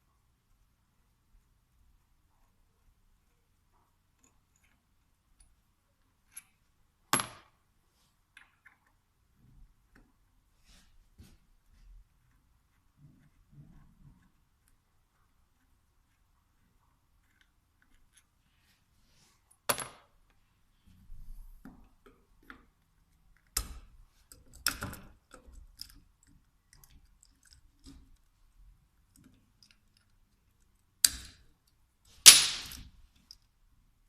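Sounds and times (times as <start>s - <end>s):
soft scraping handling: 10.6s - 19.6s.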